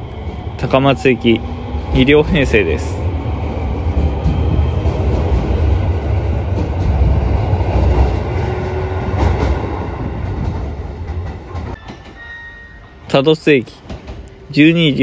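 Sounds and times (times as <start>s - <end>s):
electric train wheels rumbling: 0.0s - 14.6s.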